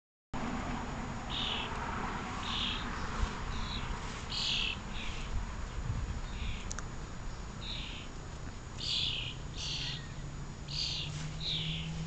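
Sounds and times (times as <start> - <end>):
birds giving harsh calls: 1.3 - 1.8, 2.4 - 5.4, 6.2 - 8.2, 8.8 - 12.0.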